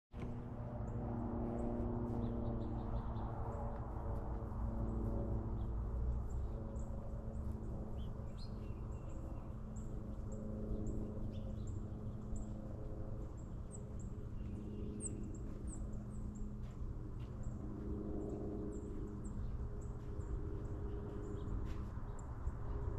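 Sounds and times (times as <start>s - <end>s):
steady low hum: 0.1s - 22.9s
songbirds chipping: 0.2s - 22.9s.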